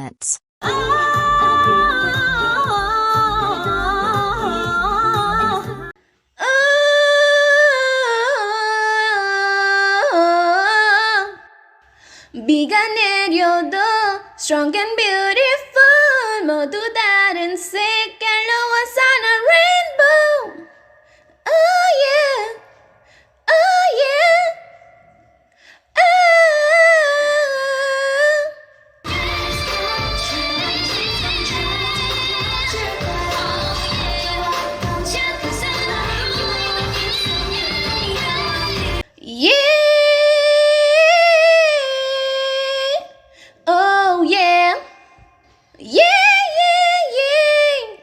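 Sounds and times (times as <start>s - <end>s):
low beat: 0.6s - 5.9s, 29.1s - 39.0s.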